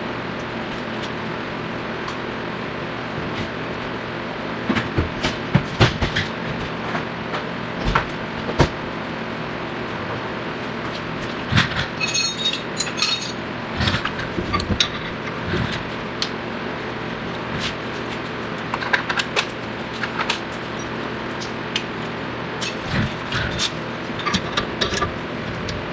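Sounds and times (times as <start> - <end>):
steady background hum: 0.0 - 25.9
ringing metallic clinks: 12.0 - 13.4.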